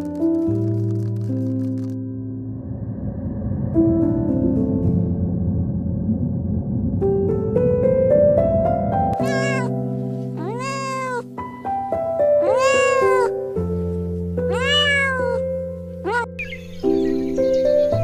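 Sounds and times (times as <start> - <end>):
soft piano music: 3.5 - 18.0
cat meowing: 9.2 - 11.3, 12.4 - 13.5, 14.4 - 16.4.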